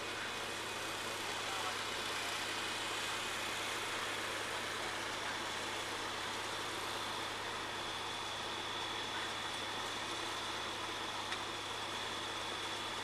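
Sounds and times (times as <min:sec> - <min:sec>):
heavy truck engine idling: 0:00.0 - 0:13.0.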